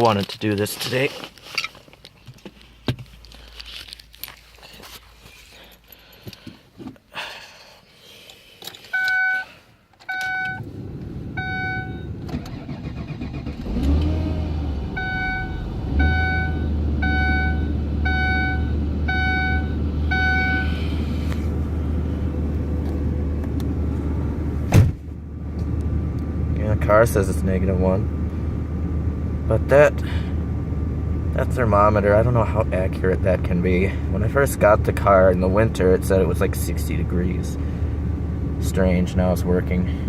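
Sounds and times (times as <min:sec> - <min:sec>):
car engine cranking and idling: 0:09.8 - 0:40.0
chime beeping: 0:15.0 - 0:20.8.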